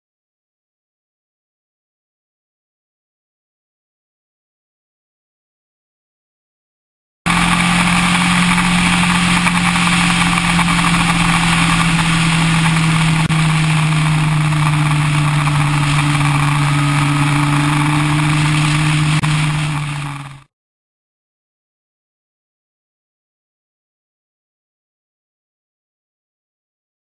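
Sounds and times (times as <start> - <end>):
motorcycle engine cruising: 7.3 - 20.5
steady rushing noise: 7.3 - 20.5.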